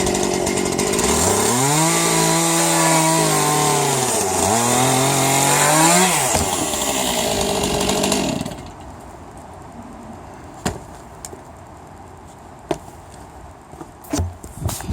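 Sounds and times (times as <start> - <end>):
chainsaw running: 0.0 - 8.8.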